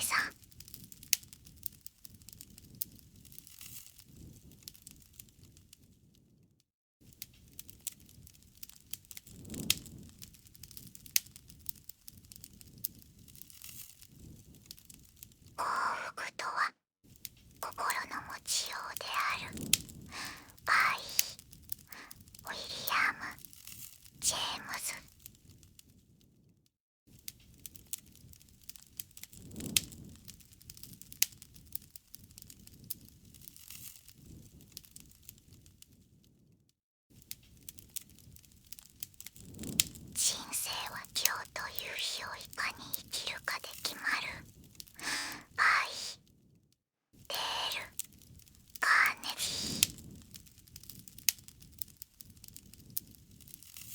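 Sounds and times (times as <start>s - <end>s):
low rumble of fire burning: 0.0s - 16.4s, 17.1s - 22.5s, 23.1s - 41.6s, 42.4s - 45.6s, 46.2s - 48.8s, 49.6s - 53.9s
wood fire pops and snaps: 0.2s - 5.7s, 7.1s - 15.6s, 19.5s - 22.4s, 27.2s - 35.9s, 37.2s - 40.2s, 49.6s - 53.9s.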